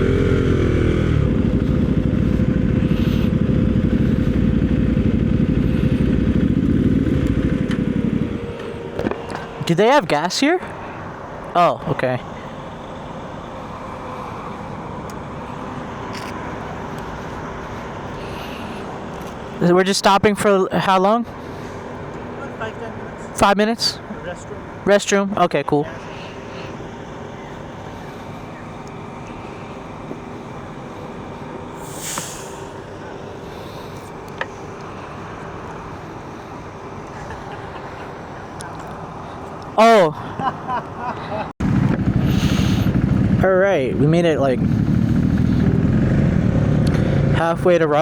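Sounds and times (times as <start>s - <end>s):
motorcycle engines running: 0.0s - 20.3s, 25.9s - 48.0s
traffic noise: 0.0s - 48.0s
short hiss: 31.8s - 32.7s.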